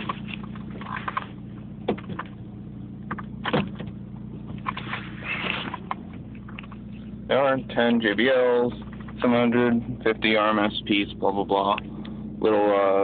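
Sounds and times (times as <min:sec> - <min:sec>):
steady low hum: 0:00.0 - 0:13.0
seat latch clunks: 0:01.8 - 0:02.4, 0:03.1 - 0:04.8.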